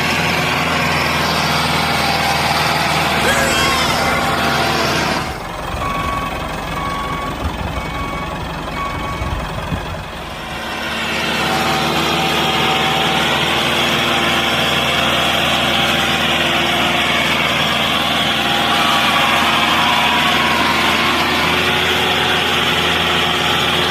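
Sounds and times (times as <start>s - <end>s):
tractor motor running: 3.9s - 18.7s.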